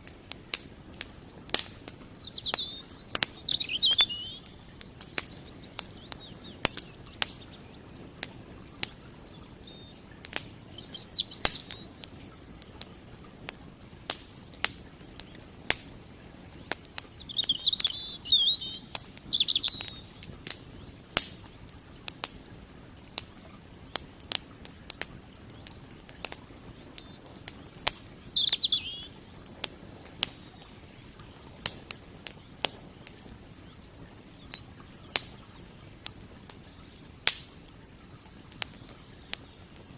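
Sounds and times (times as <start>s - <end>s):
campfire crackling and popping: 0.0s - 39.9s
creek water rushing: 0.0s - 39.9s
small bird chirping: 1.8s - 8.0s, 9.3s - 12.2s, 14.7s - 21.7s, 25.5s - 32.8s, 33.6s - 35.6s.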